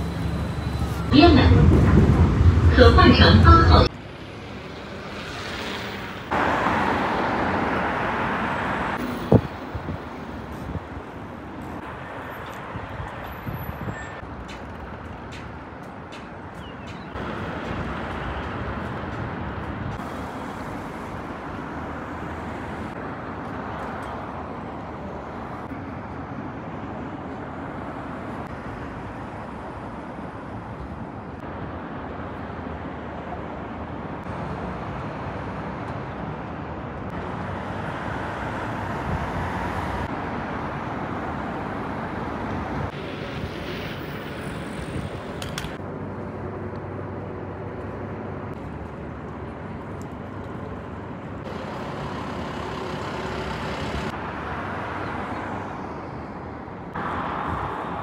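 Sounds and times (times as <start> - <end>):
rumble of moving vehicles: 0.0 - 58.0.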